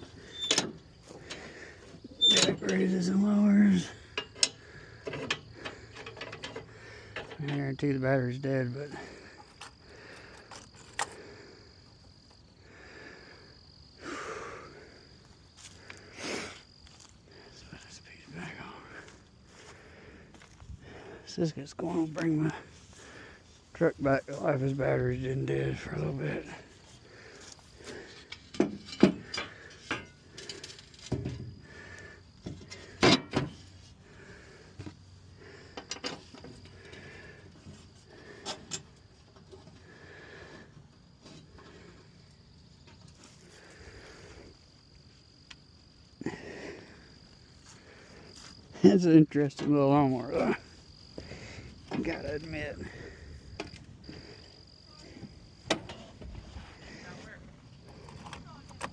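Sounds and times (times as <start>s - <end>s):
tools handled on lawn mower: 0.0s - 3.2s, 4.0s - 7.8s, 9.4s - 11.2s, 27.4s - 31.5s, 32.4s - 33.8s, 35.8s - 37.8s, 38.4s - 39.8s, 53.6s - 54.0s, 55.2s - 56.4s, 57.8s - 58.9s
crickets chirping: 0.0s - 58.9s.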